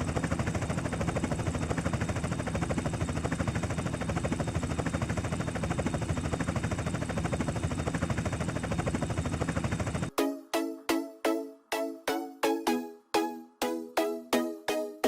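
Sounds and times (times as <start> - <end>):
helicopter engine noise: 0.0 - 10.1
helicopter rotor chopping: 0.0 - 10.1.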